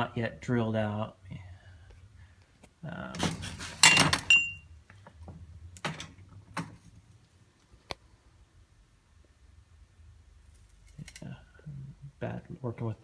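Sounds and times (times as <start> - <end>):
metal exhaust parts clinking: 3.8 - 4.6.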